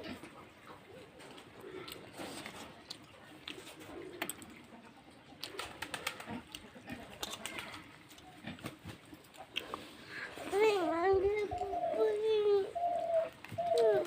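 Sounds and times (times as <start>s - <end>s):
wet mixing and chewing by hand: 0.1s - 4.7s, 5.3s - 11.7s.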